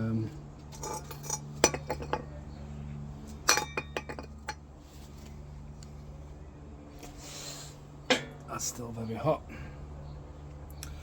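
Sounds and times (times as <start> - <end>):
steady low hum: 0.0 - 11.0
metal tools clinking: 0.7 - 2.3, 3.4 - 4.6.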